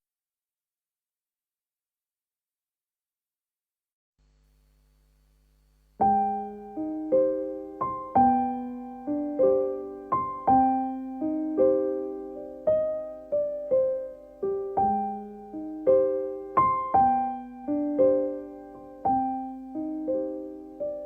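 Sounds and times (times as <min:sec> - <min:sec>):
gentle solo piano: 0:06.0 - 0:21.0.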